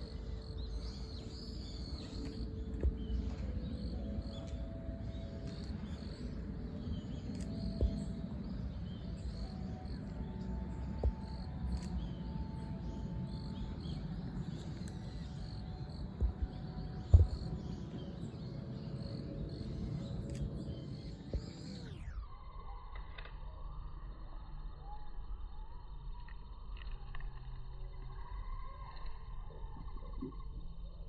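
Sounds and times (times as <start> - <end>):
steady low rumble: 0.0 - 22.6
faint high chirping: 0.0 - 31.0
short knocks: 17.1 - 17.6.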